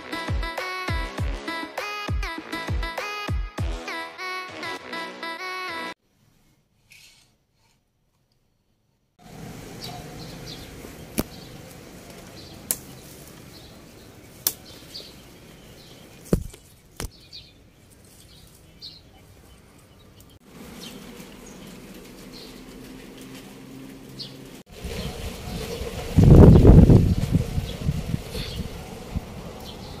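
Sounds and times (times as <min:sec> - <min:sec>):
small birds chirping: 0:09.6 - 0:30.0.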